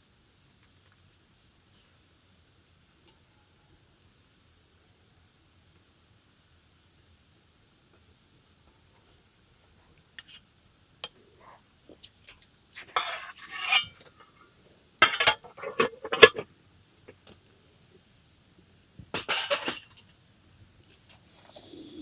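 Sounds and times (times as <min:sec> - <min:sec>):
metal cookware clinking: 0:12.9 - 0:14.0, 0:15.0 - 0:16.4, 0:19.2 - 0:20.0.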